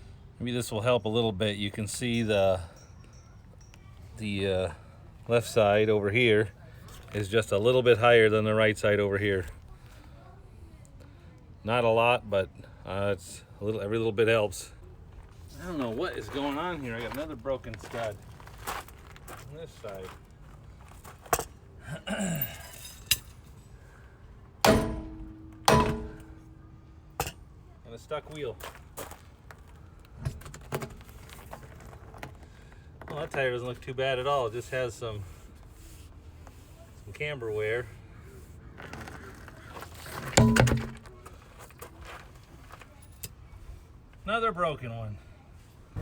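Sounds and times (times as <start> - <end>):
light metal clinks: 1.8 - 5.0, 21.4 - 23.8
hammer striking metal wheel: 24.6 - 27.4, 40.4 - 41.2
loud metallic clank: 24.6 - 27.4, 40.4 - 41.2.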